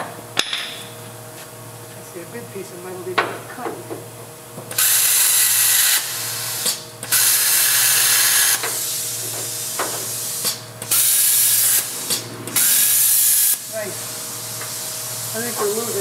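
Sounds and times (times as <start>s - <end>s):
machine low hum: 0.0s - 16.0s
plasma cutter hissing: 4.7s - 16.0s.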